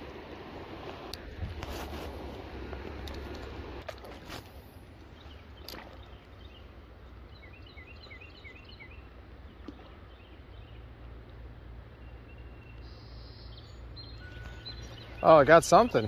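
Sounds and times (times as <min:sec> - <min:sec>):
low outdoor rumble: 0:00.0 - 0:16.0
small bird chirping: 0:12.0 - 0:16.0.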